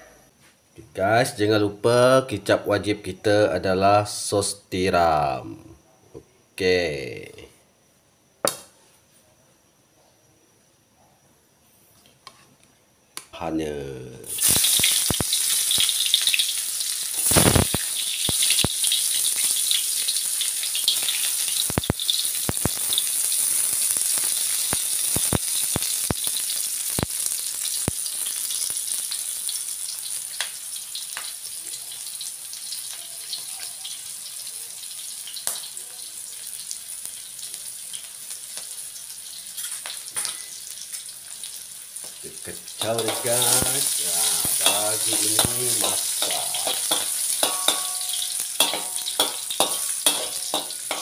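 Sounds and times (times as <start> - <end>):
spices sizzling in hot oil: 14.2 - 51.0.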